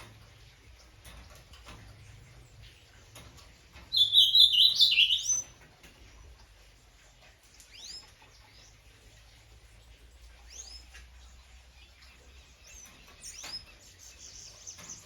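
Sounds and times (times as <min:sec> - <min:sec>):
bird singing stepped notes: 0:03.9 - 0:05.6.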